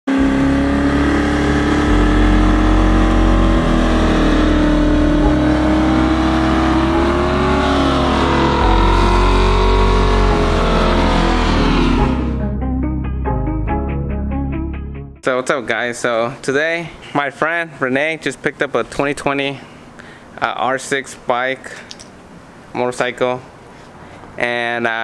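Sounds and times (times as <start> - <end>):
engine running at high revs: 0.1 - 12.5
low tone shifting in steps: 0.1 - 15.7.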